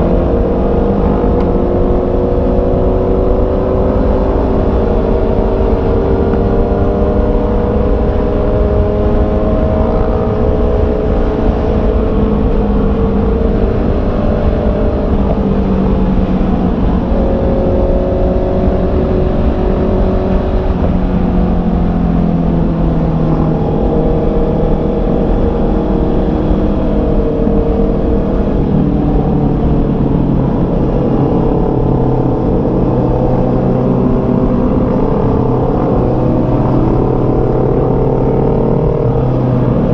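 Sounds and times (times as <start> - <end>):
low wind rumble: 0.0 - 39.9
motorcycle engine revving: 0.0 - 39.9.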